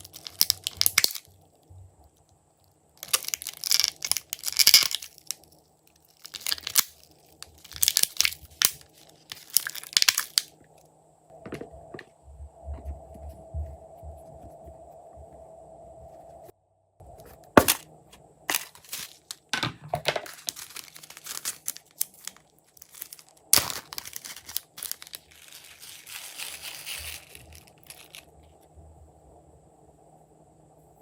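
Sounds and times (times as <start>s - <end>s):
slime crackling and popping: 0.0s - 1.3s.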